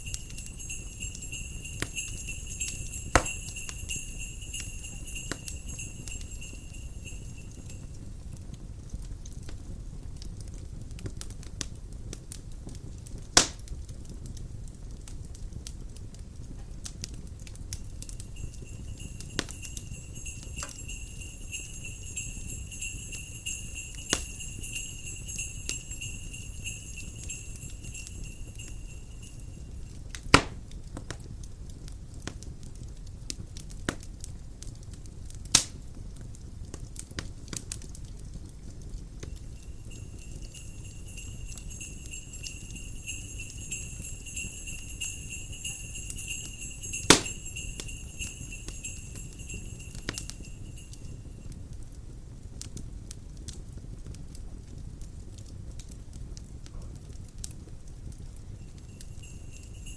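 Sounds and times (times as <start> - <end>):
wind rumbling: 0.0 - 7.8, 17.8 - 29.9, 39.2 - 51.4
sleigh bells jingling: 0.0 - 8.3, 17.7 - 30.1, 39.0 - 51.5, 58.3 - 59.9
log fire crackling: 0.0 - 59.9.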